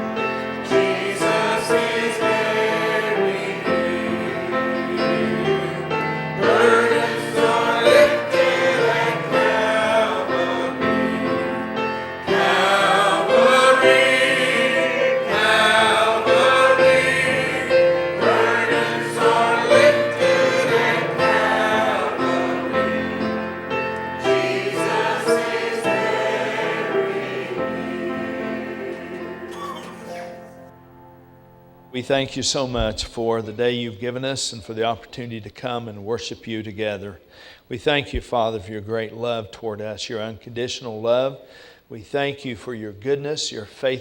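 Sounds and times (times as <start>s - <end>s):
choir singing a gospel hymn: 0.0s - 30.8s
keyboard chords: 0.0s - 32.0s.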